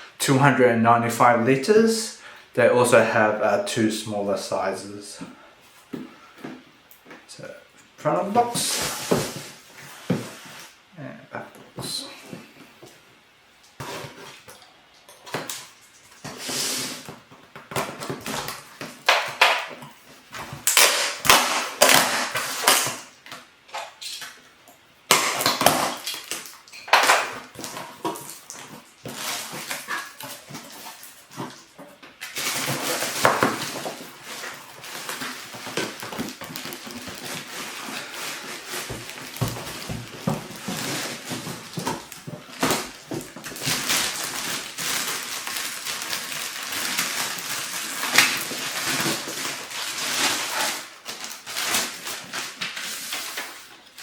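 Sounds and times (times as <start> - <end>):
packaging rustling: 25.2 - 54.0.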